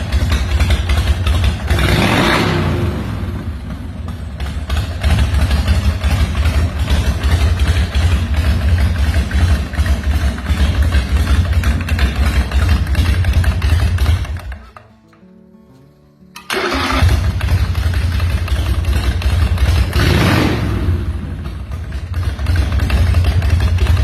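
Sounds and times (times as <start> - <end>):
motorcycle engine idling: 0.0 - 14.8, 16.6 - 24.0
quiet background music: 12.4 - 19.4.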